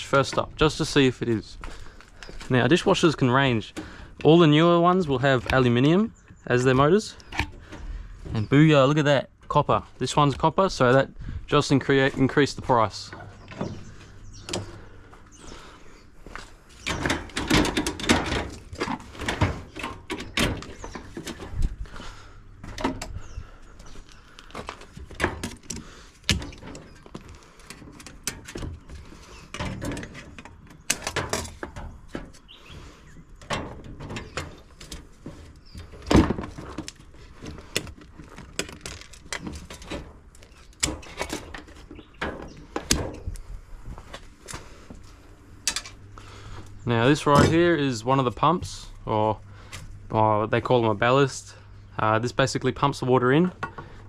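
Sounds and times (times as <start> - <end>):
metal clanks and rattles: 16.3 - 43.4, 45.6 - 46.1, 47.0 - 47.9.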